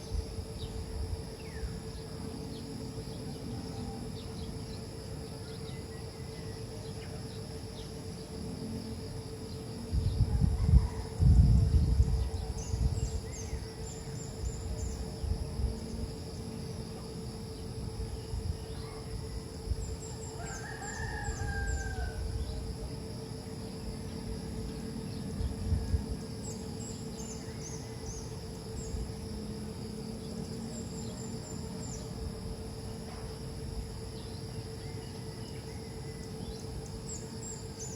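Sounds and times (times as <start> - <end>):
constant hum: 0.0 - 37.9
high insect chirping: 0.0 - 37.9
rooster crowing: 10.3 - 11.6, 20.3 - 22.5.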